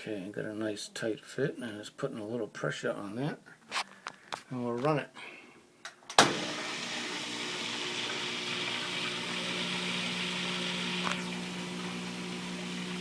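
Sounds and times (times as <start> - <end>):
drain pump humming: 6.2 - 13.0.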